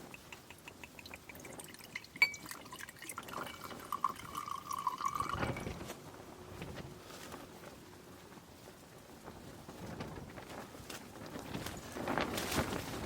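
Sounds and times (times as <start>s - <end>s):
small ticks: 0.0s - 1.3s
liquid dripping: 0.0s - 5.7s
liquid pouring into a vessel: 0.0s - 5.8s
steady ringing tone: 2.0s - 3.0s.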